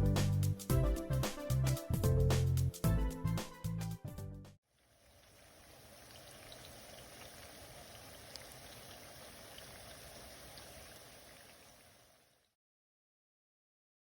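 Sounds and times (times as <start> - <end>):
background music: 0.0 - 4.6
creek flowing: 4.8 - 12.4
light ticks in water: 4.8 - 12.5.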